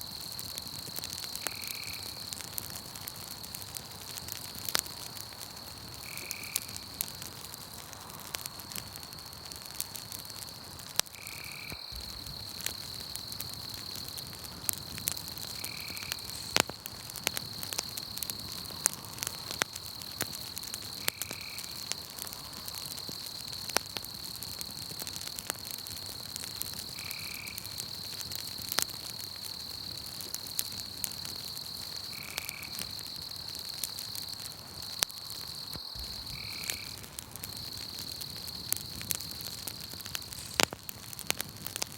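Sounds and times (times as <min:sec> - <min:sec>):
campfire crackling and popping: 0:00.0 - 0:41.9
crickets trilling: 0:00.0 - 0:41.9.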